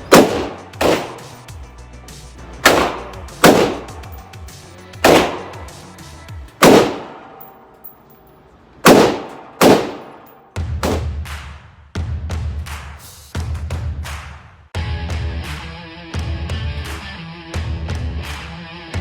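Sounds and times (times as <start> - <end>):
loud gunshots with echo: 0.0 - 1.5, 2.6 - 4.2, 5.0 - 5.9, 6.6 - 7.5, 8.8 - 11.6.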